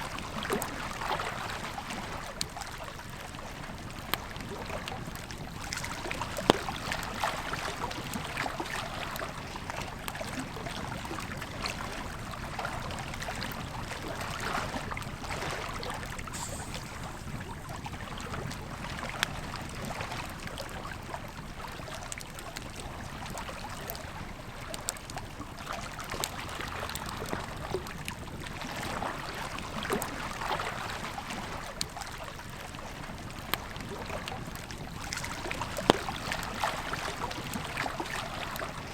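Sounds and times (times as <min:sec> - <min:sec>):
river flowing: 0:13.4 - 0:19.2
campfire crackling and popping: 0:16.0 - 0:19.8.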